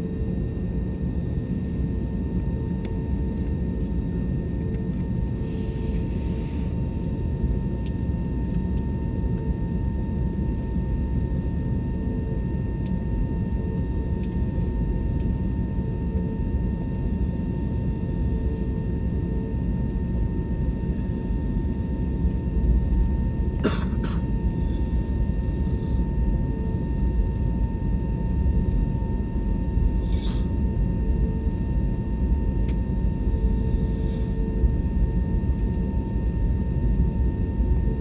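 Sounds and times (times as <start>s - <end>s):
airliner cabin engine rumble: 0.0s - 38.0s.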